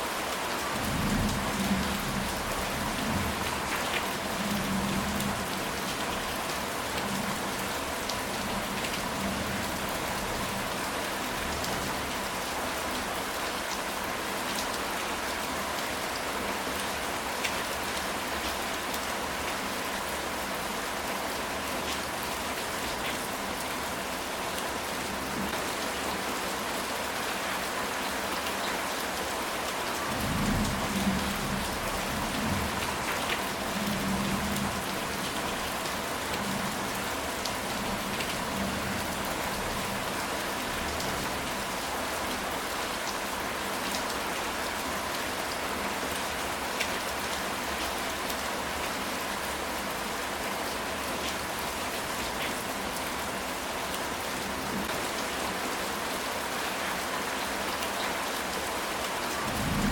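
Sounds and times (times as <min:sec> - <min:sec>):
rain on a tile roof: 0:00.0 - 0:59.9
thunder rumble: 0:59.5 - 0:59.9.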